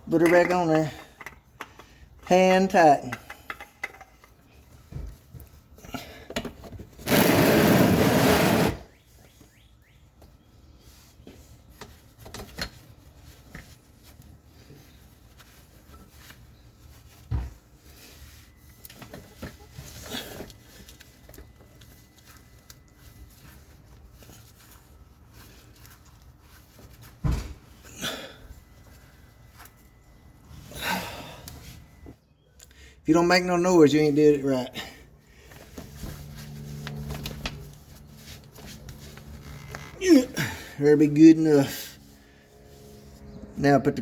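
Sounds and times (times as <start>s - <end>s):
loud rush of noise: 7.1s - 8.8s.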